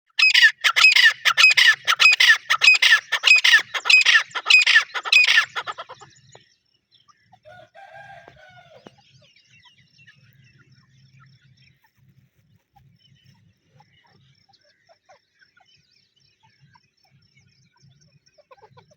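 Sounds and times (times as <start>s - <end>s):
francolin calling: 0.1s - 10.6s.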